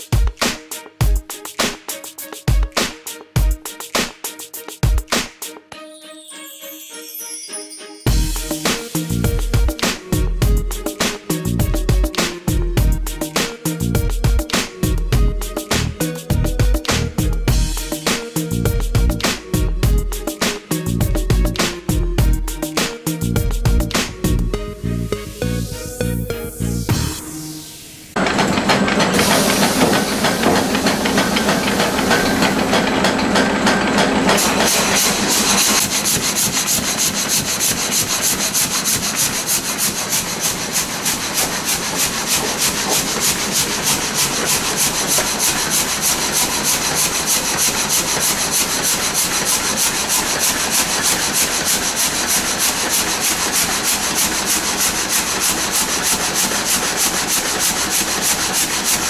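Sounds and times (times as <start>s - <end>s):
rubbing and scraping on wood: 34.4s - 59.0s.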